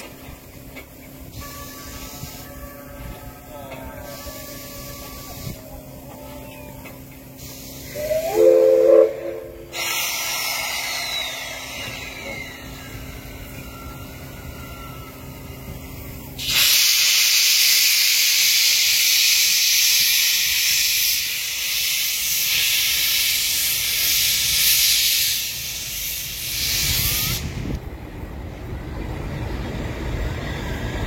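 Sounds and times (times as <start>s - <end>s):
air hissing: 7.4s - 13.3s, 16.4s - 27.8s.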